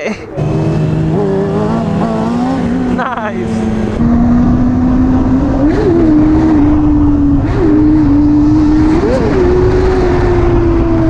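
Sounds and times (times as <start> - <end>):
wind rumble on microphone: 3.9 - 11.0.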